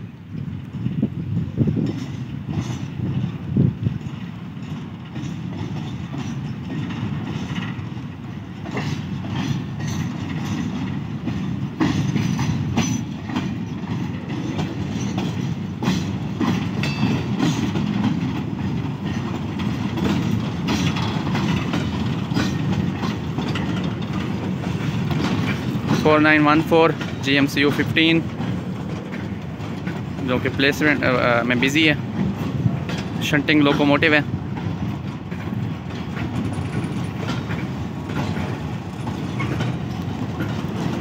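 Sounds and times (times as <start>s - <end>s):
freight wagons low running noise: 0.0s - 41.0s
wheels clacking over rail joints: 0.4s - 41.0s.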